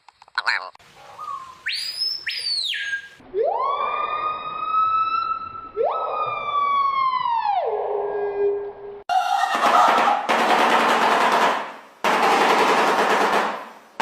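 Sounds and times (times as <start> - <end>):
bird siren-like calls: 1.1 - 10.2.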